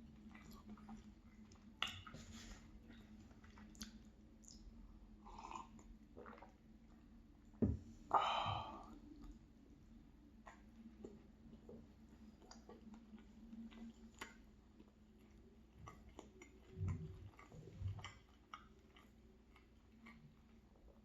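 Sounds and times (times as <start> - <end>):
chewing food: 0.0 - 7.1, 10.4 - 21.0
low soft thumps: 7.6 - 8.7.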